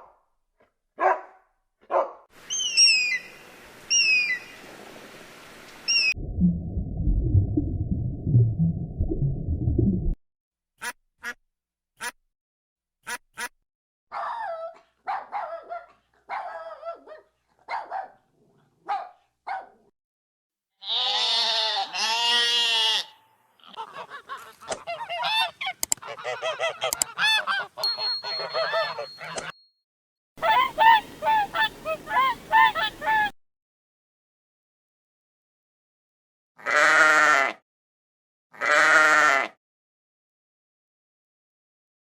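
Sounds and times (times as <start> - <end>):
geese honking: 23.7 - 29.5, 30.4 - 33.3.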